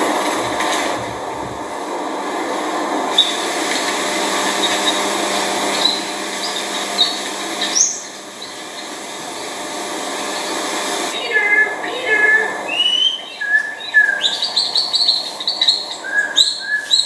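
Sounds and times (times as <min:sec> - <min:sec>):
steady hiss: 0:00.0 - 0:17.0
high bird chirps: 0:05.7 - 0:08.9, 0:11.2 - 0:17.0.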